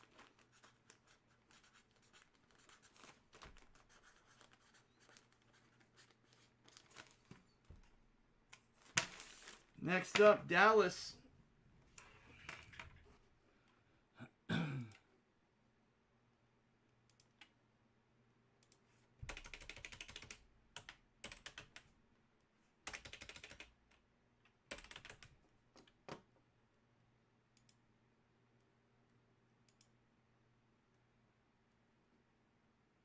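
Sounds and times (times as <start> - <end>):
keyboard typing: 18.6 - 21.8, 22.9 - 23.7, 24.7 - 26.0.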